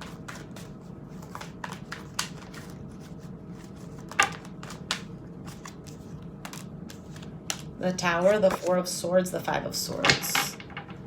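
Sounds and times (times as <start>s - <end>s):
cards shuffling: 0.0s - 8.8s.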